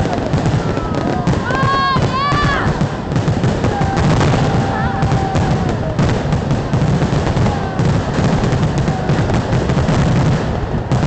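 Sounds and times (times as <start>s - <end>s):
faint fireworks whistles: 0.0s - 11.0s
fireworks bangs and crackles: 0.0s - 11.0s.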